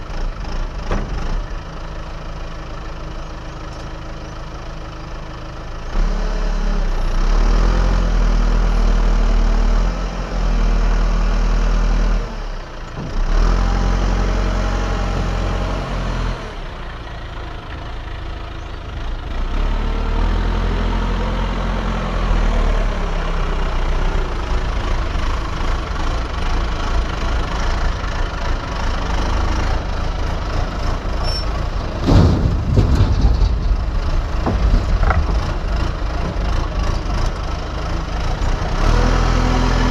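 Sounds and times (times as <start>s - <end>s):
excavator diesel engine working: 0.0s - 39.9s
knocks and cracks: 32.0s - 36.4s.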